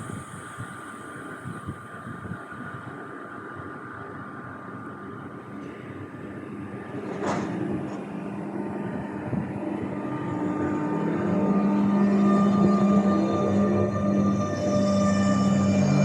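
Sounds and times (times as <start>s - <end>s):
electric train approaching: 0.0s - 16.0s
hum: 7.7s - 16.0s.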